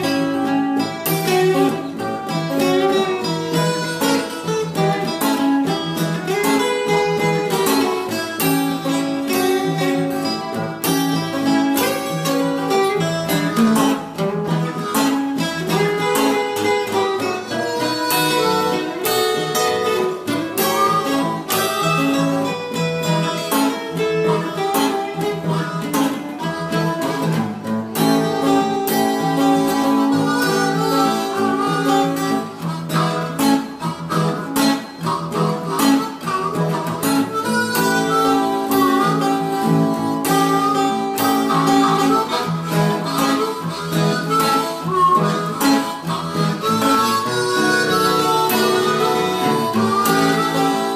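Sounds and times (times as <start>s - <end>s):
harmonica lead: 0.0s - 50.9s
rhythm guitars: 0.0s - 50.9s.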